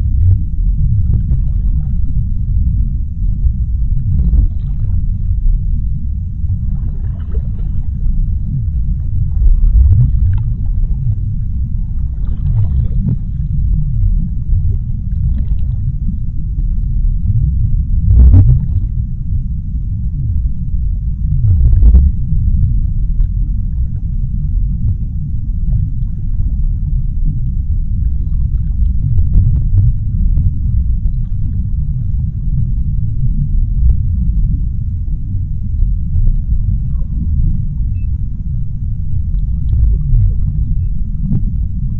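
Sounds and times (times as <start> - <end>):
deep underwater rumble: 0.0 - 41.9
water surges: 3.4 - 16.8.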